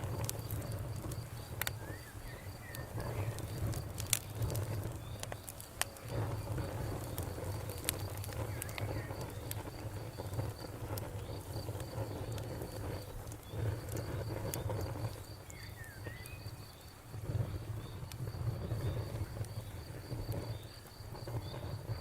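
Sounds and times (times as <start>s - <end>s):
low steady rumble: 0.0s - 15.4s
campfire crackling and popping: 0.0s - 22.0s
crickets chirping: 0.0s - 22.0s.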